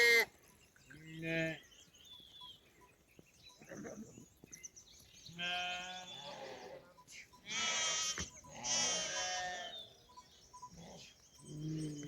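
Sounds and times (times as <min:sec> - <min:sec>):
livestock bleat: 0:01.0 - 0:01.6, 0:05.3 - 0:09.9
faint bird chirps: 0:08.2 - 0:12.0.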